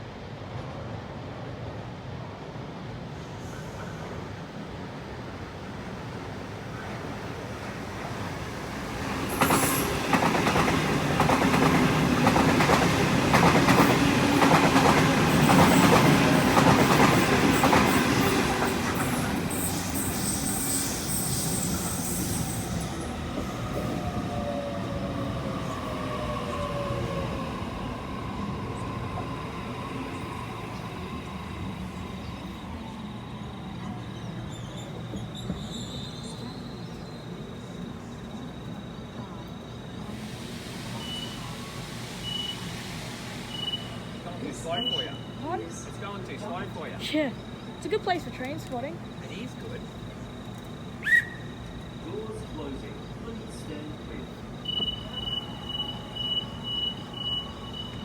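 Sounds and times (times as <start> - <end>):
falling train whine: 4.1 - 58.0
train wheels clacking on rails: 6.9 - 27.2
train wheel squeal: 8.2 - 47.0, 50.8 - 58.0.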